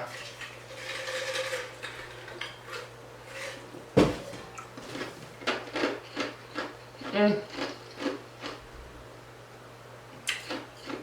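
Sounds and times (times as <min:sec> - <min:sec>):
dishes and utensils clattering: 0:00.0 - 0:05.6
knocks: 0:04.0 - 0:04.4.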